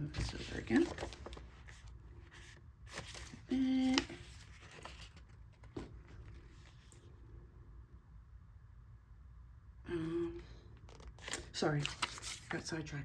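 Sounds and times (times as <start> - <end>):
paper pages rustling: 0.0 - 7.0, 10.9 - 12.8
person humming: 3.5 - 4.1, 9.9 - 10.6.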